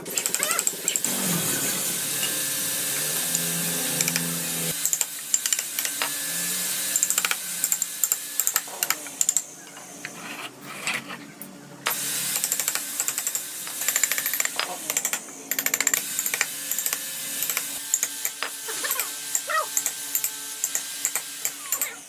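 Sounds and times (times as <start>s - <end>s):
small motor running with hiss: 0.0s - 9.4s, 11.9s - 15.0s, 16.0s - 22.0s
tools tapping on wood: 3.0s - 6.2s, 11.9s - 21.9s.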